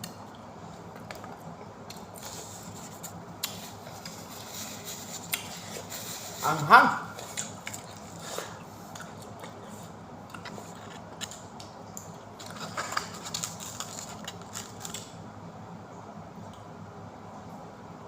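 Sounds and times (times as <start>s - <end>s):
person chewing pizza: 0.8s - 15.2s.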